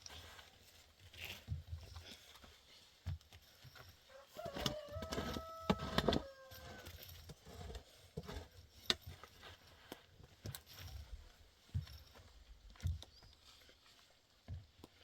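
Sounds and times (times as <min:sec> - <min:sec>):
rooster crowing: 0:04.1 - 0:06.9.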